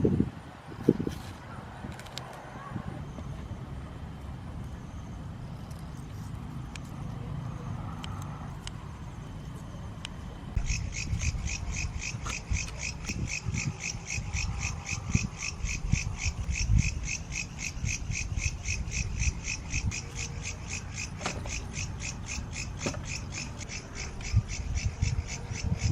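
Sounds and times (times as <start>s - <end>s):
high-pitched animal chirps: 10.6s - 25.9s.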